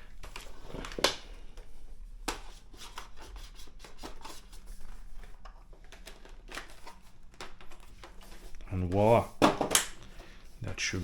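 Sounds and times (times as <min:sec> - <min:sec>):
plastic rubbing and scraping: 0:02.4 - 0:10.9.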